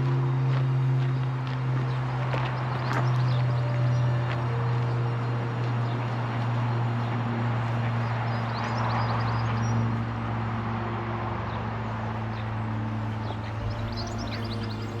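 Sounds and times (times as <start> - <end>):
low machine hum: 0.0 - 15.0
small birds chirping: 1.0 - 4.9, 12.3 - 15.0.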